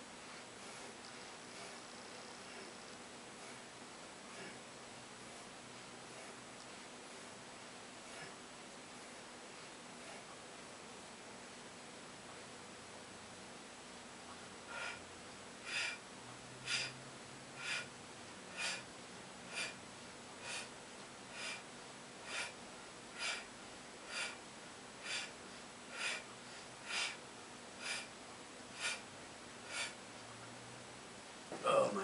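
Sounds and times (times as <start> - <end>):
man's sharp forceful breaths: 0.1 - 7.3, 7.9 - 10.5, 14.6 - 30.3.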